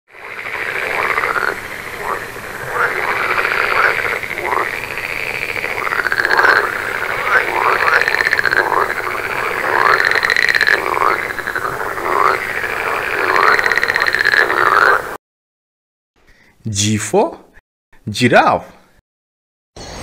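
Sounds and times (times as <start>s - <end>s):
frogs croaking: 0.1s - 15.2s.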